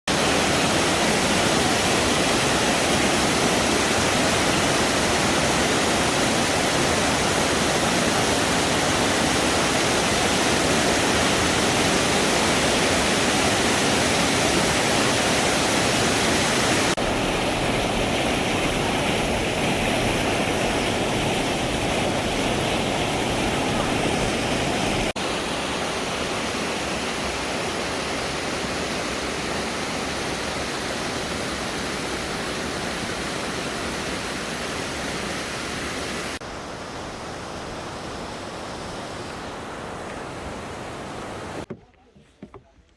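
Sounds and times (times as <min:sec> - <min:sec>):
waterfall rushing: 0:00.1 - 0:41.7.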